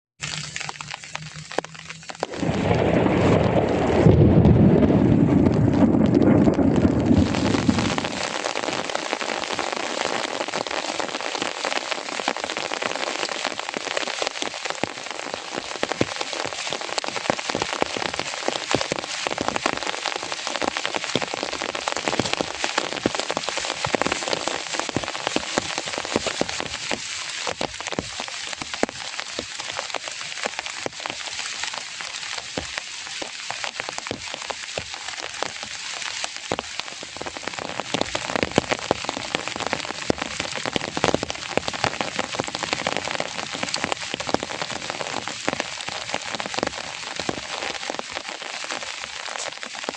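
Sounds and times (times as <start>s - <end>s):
raindrops hitting nearby surface: 0.2s - 49.9s
steady rain: 0.2s - 49.9s.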